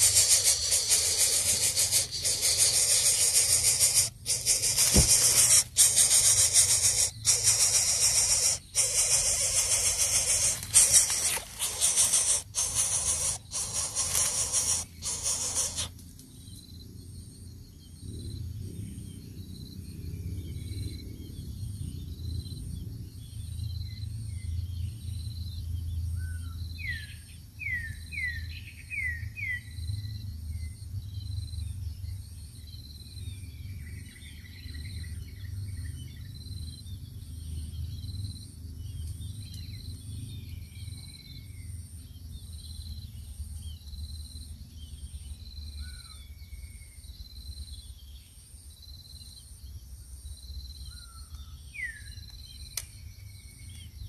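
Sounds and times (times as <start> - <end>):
small birds calling: 0.0 - 16.6, 44.6 - 48.6
insect chirping: 0.0 - 18.3, 29.6 - 54.0
continuous low rumble: 0.0 - 54.0.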